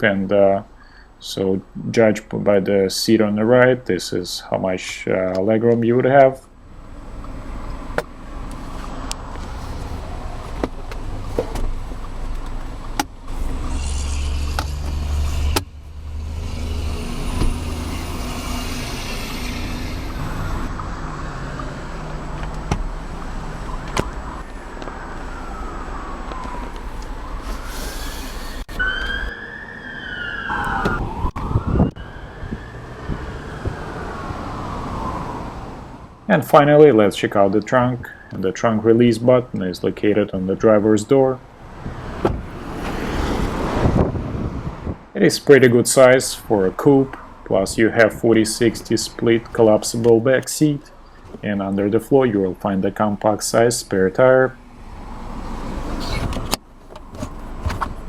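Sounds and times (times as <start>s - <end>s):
traffic rumble: 0.0s - 58.0s
emergency vehicle siren wailing: 8.2s - 11.3s, 13.2s - 36.2s, 37.7s - 39.0s.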